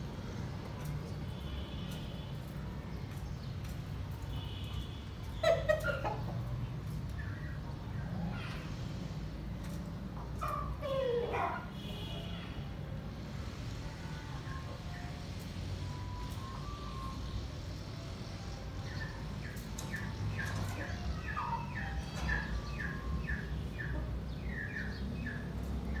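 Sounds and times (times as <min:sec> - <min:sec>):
bird chirping: 0:18.8 - 0:26.0.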